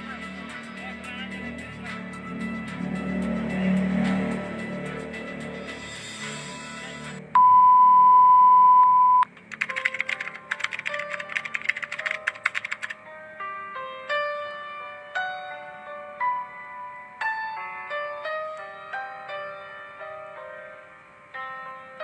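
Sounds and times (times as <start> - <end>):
loud steady beep: 7.4 - 9.3
rapid keyboard typing clicks: 9.3 - 13.0
slow piano notes: 9.7 - 22.0.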